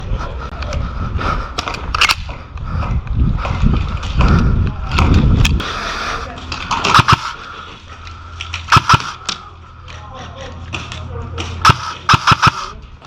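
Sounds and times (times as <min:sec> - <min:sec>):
microphone handling rumble: 0:02.6 - 0:05.7
airsoft gun shots: 0:06.9 - 0:07.4, 0:08.7 - 0:09.2, 0:11.6 - 0:12.7.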